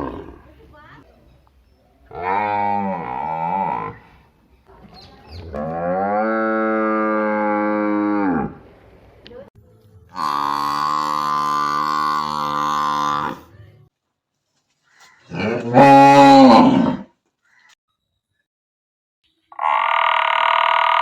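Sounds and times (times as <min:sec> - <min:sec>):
cow mooing: 0:15.3 - 0:17.1.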